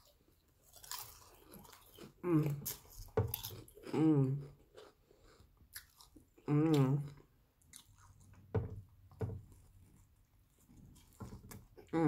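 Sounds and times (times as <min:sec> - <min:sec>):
person chewing sandwich: 0:00.0 - 0:08.5.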